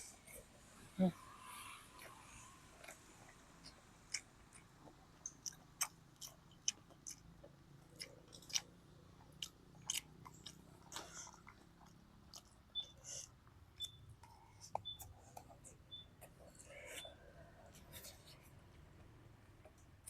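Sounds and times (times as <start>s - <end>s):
person biting and chewing food: 7.9s - 12.6s.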